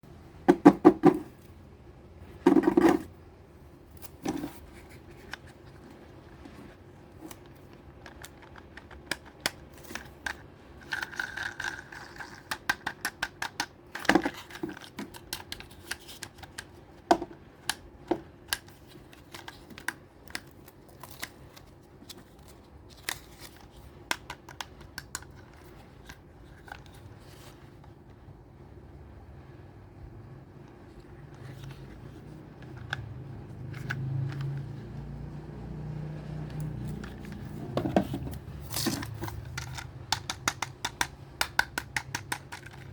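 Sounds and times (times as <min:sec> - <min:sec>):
toys clicking and tapping: 0:39.0 - 0:42.9.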